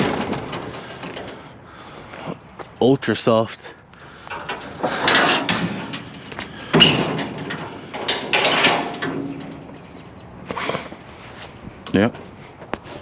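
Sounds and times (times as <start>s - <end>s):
scraping and rustling handling noise: 4.3s - 13.0s.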